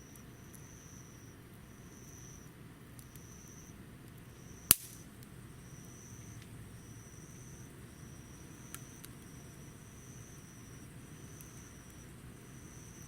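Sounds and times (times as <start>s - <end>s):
burning wood popping: 4.2s - 5.4s.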